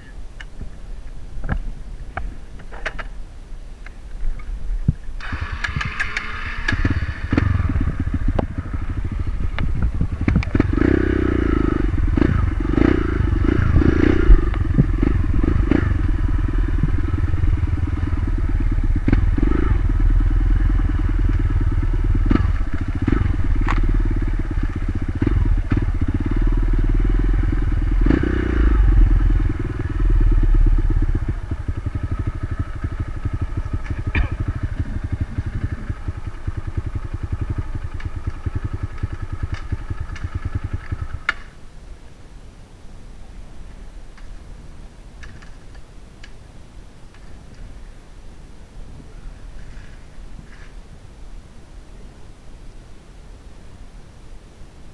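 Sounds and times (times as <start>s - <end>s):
dirt bike engine revving: 5.2s - 41.4s.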